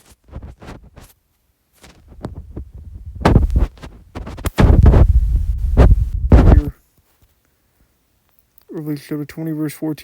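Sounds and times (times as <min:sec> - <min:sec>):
microphone handling thumps and rubbing: 0:00.0 - 0:01.1, 0:01.8 - 0:06.7.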